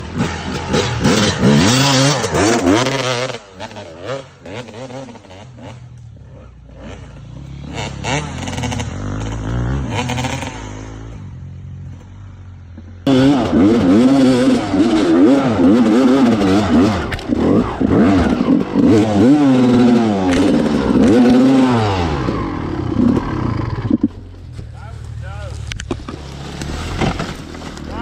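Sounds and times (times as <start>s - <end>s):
two-stroke dirt bike revving: 0.0s - 28.0s.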